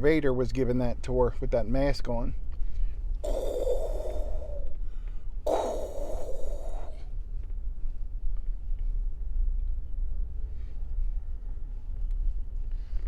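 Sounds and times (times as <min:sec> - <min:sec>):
breath blown into microphone: 0:03.2 - 0:07.1.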